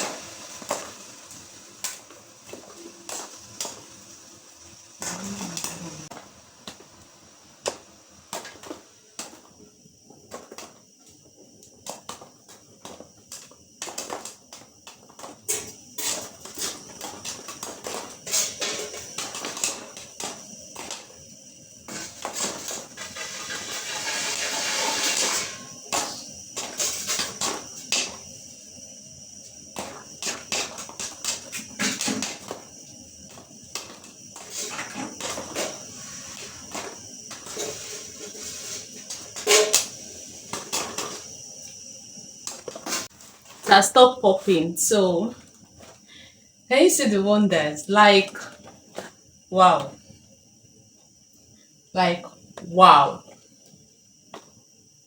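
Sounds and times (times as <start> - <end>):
gas burner hiss: 0.0 - 55.0
popcorn popping in paper bag: 5.0 - 21.2.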